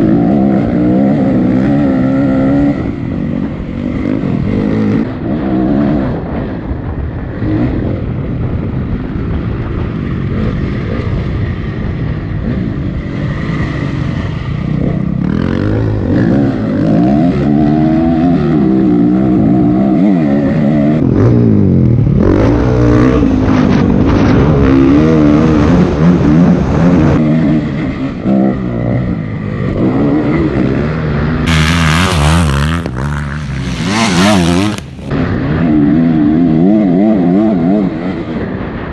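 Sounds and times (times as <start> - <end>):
dirt bike engine revving: 31.5 - 35.1.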